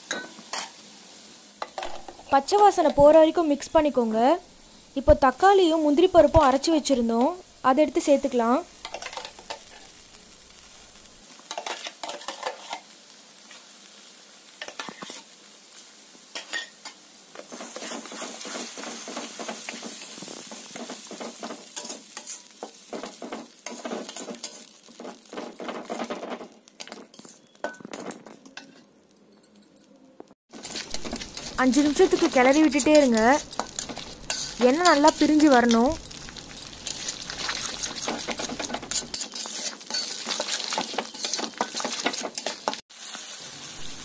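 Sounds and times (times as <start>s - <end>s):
puree sizzling in hot oil: 0.0s - 29.1s, 30.5s - 44.0s
steel spoon scraping a pan: 8.8s - 10.0s, 11.5s - 12.9s, 14.6s - 15.3s, 16.3s - 28.9s, 30.5s - 43.3s.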